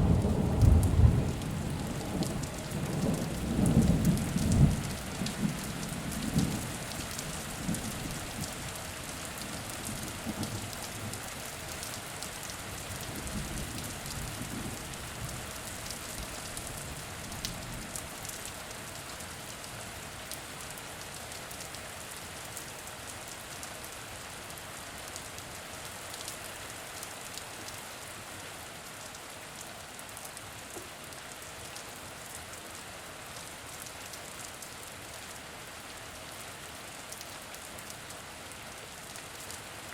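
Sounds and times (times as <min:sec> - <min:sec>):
low rumble of thunder: 0:00.0 - 0:06.8, 0:13.3 - 0:15.2
steady rain falling: 0:00.0 - 0:39.9.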